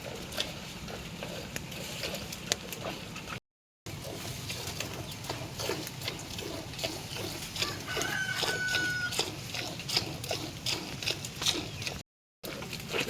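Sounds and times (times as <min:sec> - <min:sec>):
chickens clucking: 0:04.6 - 0:10.4.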